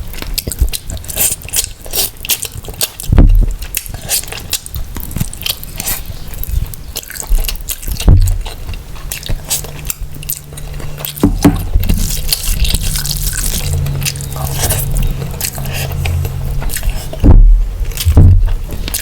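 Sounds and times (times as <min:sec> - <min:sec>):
wet chewing mouth sounds: 0:00.0 - 0:19.0
low thump: 0:17.2 - 0:18.6.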